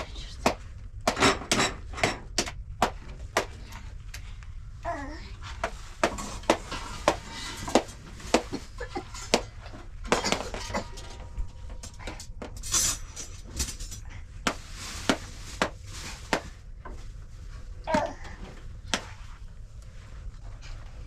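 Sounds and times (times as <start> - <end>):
sharp knocks and clatters: 0.0 - 3.7, 5.6 - 17.0.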